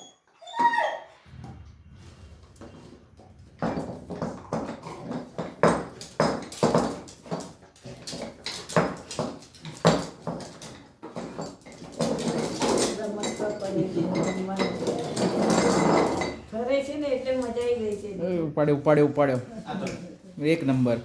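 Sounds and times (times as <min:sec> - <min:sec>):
puppies scuffling on hard floor: 0:01.4 - 0:18.1.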